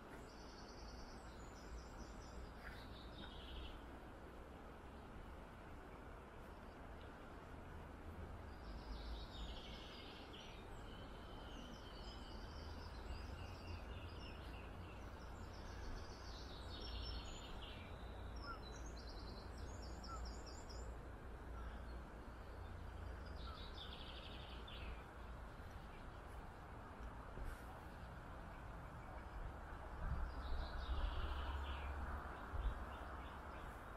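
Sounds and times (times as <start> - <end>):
low rumble and hiss: 0.0 - 33.9
songbirds trilling: 8.4 - 26.6, 28.8 - 33.9.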